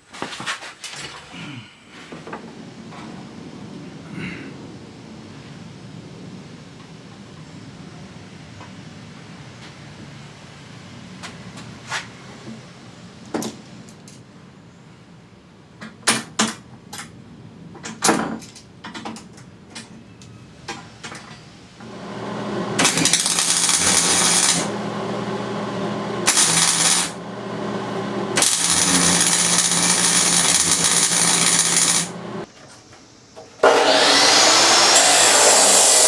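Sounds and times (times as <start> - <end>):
electric power tool running: 21.8 - 32.5, 33.6 - 36.0.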